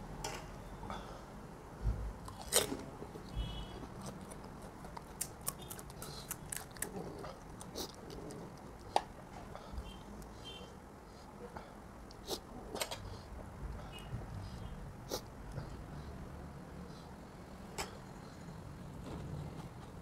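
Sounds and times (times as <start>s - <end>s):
crunchy shells being chewed: 2.2s - 2.9s, 3.9s - 9.1s.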